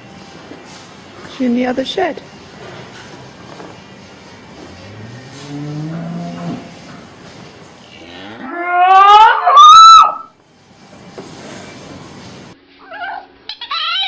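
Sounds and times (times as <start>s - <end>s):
cow mooing: 4.7s - 6.9s, 7.9s - 9.7s.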